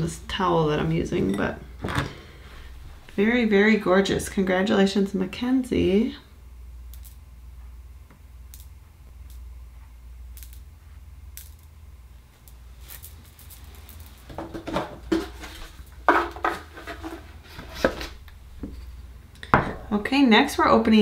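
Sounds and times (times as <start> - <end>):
steady low hum: 0.0 - 21.0
shells clattering on a tabletop: 6.9 - 7.2, 8.5 - 8.7, 10.4 - 10.7, 11.4 - 11.7.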